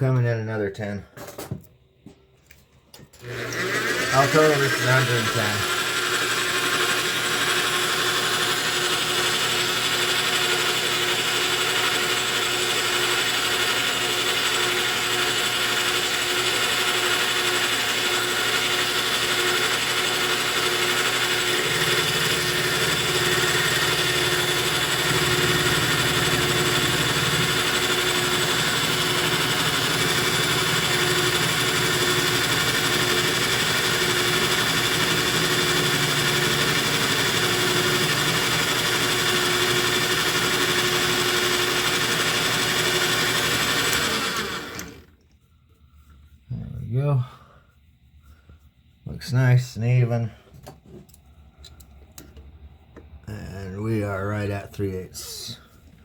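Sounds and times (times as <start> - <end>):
lathe machine whine: 3.2 - 45.1.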